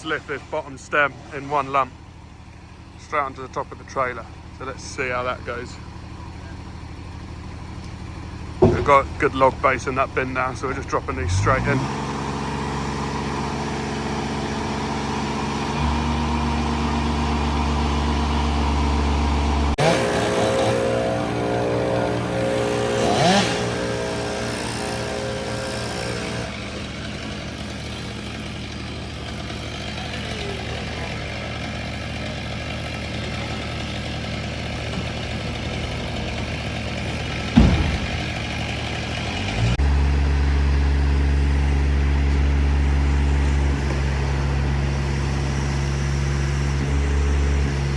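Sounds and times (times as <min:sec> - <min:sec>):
heavy machine engine running: 0:00.0 - 0:47.9
sharp knock: 0:37.6 - 0:38.6.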